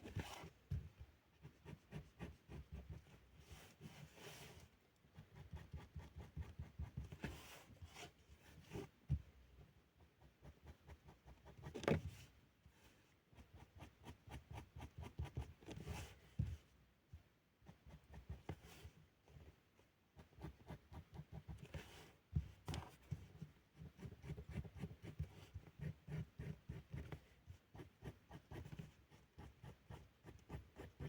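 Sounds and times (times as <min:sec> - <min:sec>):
pen scratching on paper: 0:23.8 - 0:31.0.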